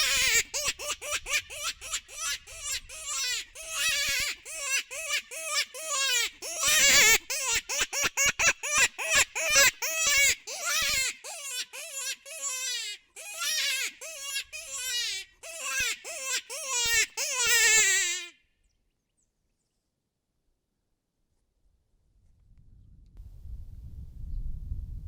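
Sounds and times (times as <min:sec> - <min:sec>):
animal distress cries from caller: 0:00.0 - 0:18.3.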